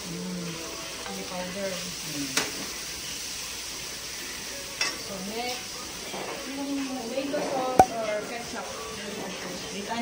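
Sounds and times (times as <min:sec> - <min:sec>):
food sizzling in hot oil: 0:00.0 - 0:07.2.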